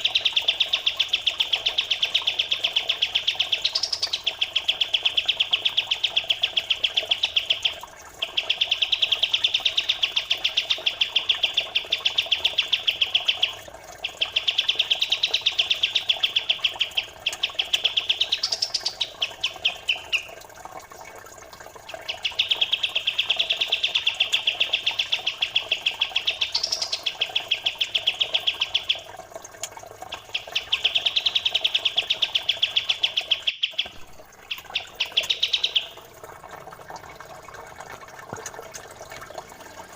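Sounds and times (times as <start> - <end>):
songbird chirping fast: 0.0 - 20.5, 21.8 - 29.1, 30.0 - 36.1
water trickling: 0.0 - 39.9.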